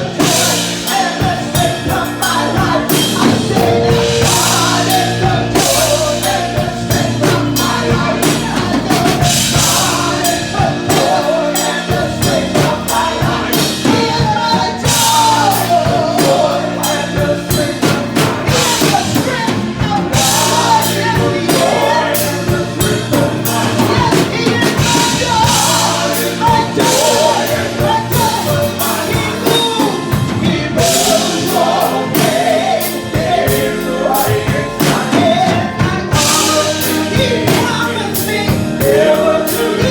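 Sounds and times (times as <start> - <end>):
church band with drums and keyboard: 0.0 - 39.9
voices singing along: 0.0 - 39.9.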